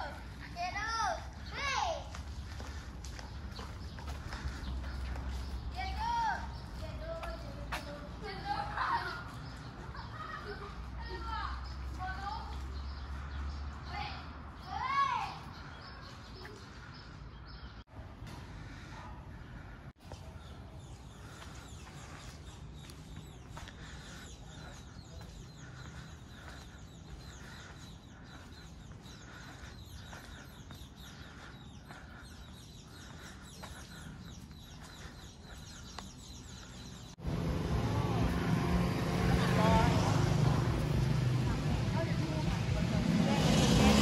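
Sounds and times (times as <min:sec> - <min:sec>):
small birds chirping: 0:00.0 - 0:37.5
low traffic rumble: 0:00.0 - 0:44.0
street noise: 0:00.0 - 0:44.0.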